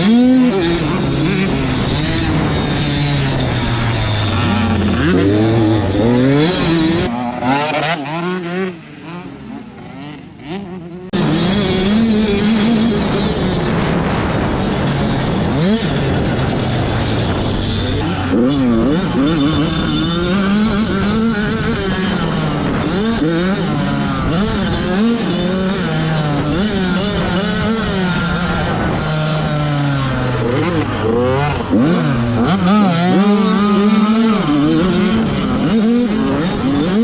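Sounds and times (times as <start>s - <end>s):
motocross bike engines revving: 0.0s - 37.0s.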